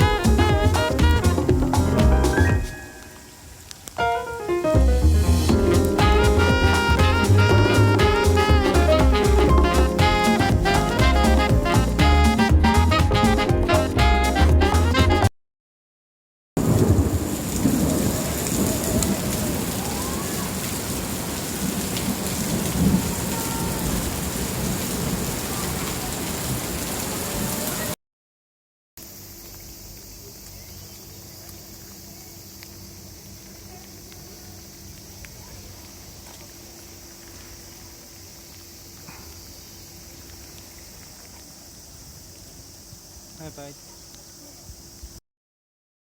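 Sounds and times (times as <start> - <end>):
heavy rain: 0.0 - 15.1, 16.6 - 28.0.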